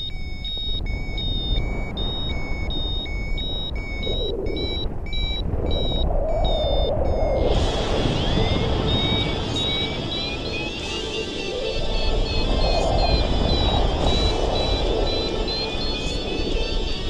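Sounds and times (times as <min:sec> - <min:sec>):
two-tone electronic beeps: 0:00.0 - 0:17.0
wind rumble: 0:00.0 - 0:17.0
hiss: 0:06.3 - 0:17.0.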